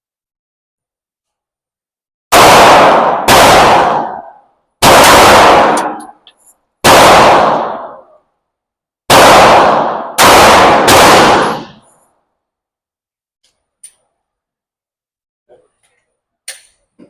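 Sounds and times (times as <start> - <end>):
pistol shots echoing indoors: 2.3 - 6.2, 6.8 - 8.2, 9.1 - 12.1.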